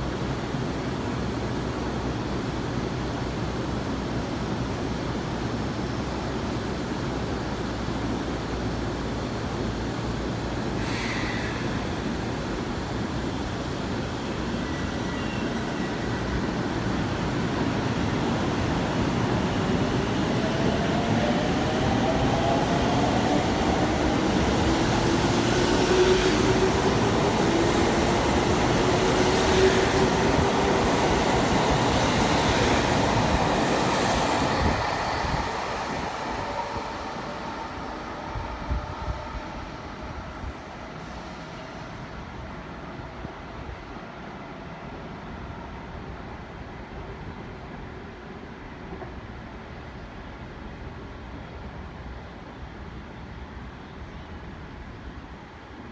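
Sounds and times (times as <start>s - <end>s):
wheels rumbling on rail: 0.0s - 43.9s.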